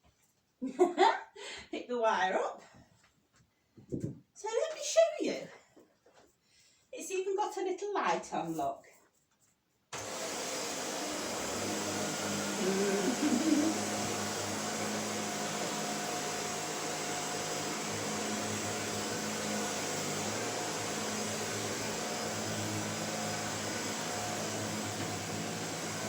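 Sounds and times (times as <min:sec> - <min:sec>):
vacuum cleaner running: 0:10.0 - 0:26.0.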